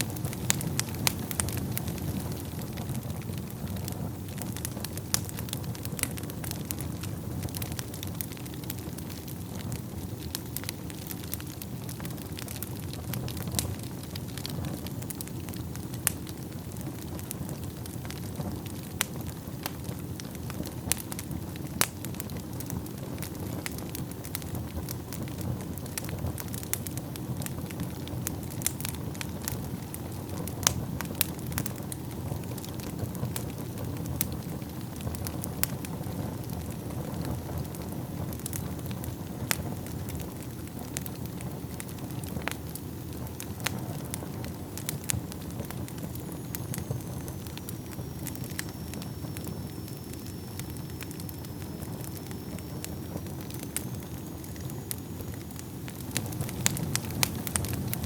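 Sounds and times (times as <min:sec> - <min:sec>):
fire flames rumbling: 0:00.0 - 0:58.0
wood crackling and popping: 0:00.0 - 0:58.0.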